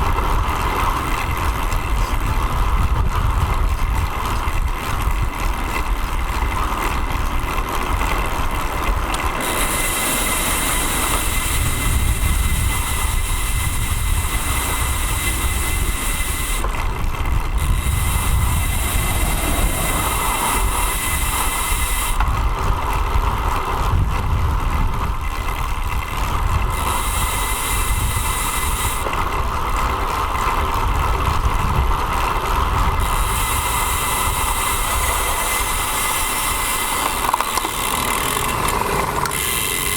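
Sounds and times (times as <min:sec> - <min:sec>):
road rumble: 0:00.0 - 0:39.9
wind buffeting: 0:00.0 - 0:39.9
high hiss: 0:17.9 - 0:22.2.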